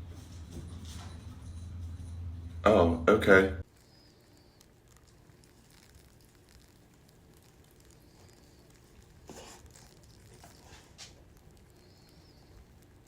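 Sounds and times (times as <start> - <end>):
soft rustles: 4.3 - 13.0.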